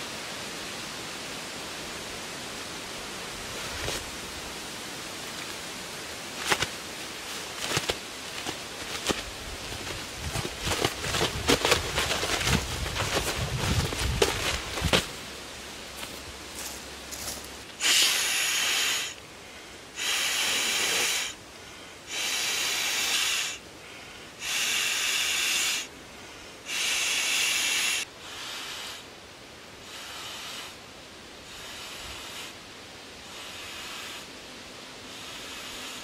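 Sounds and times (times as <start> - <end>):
sleeping pad rustle: 3.4 - 4.2, 5.2 - 19.2.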